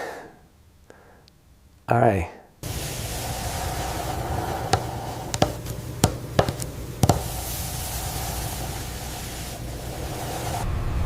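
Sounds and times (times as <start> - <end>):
steady hum and hiss: 0.0 - 10.7
sharp knocks: 4.7 - 7.4.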